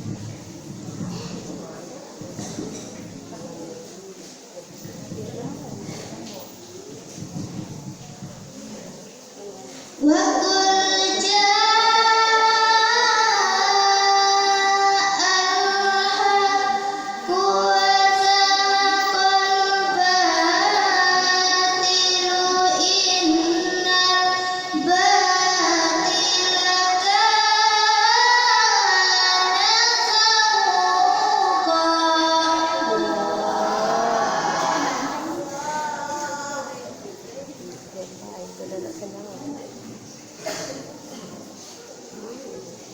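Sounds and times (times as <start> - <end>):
girl reciting melodically: 9.8 - 37.0.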